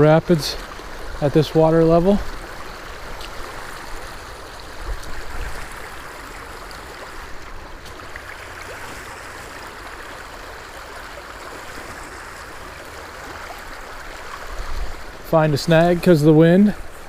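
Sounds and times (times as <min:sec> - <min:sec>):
water rushing over rapids: 0:00.0 - 0:17.0.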